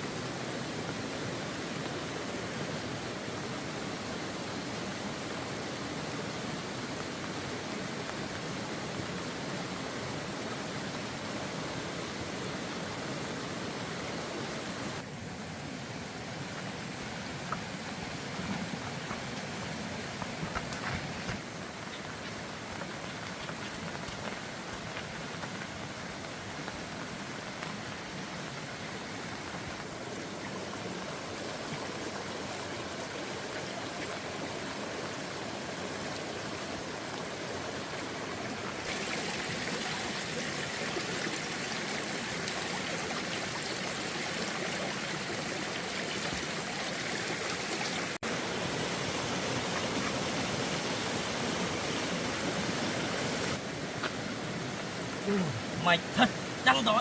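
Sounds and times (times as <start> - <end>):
rushing floodwater: 0.0 - 57.0.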